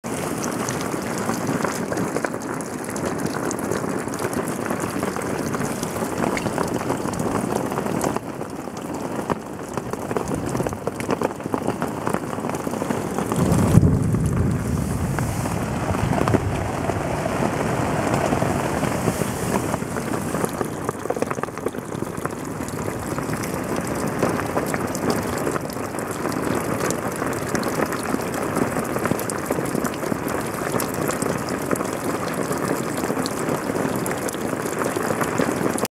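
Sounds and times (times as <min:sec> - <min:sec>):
rain drops striking fabric and rock: 0:00.0 - 0:35.9
low rumble: 0:13.1 - 0:19.1.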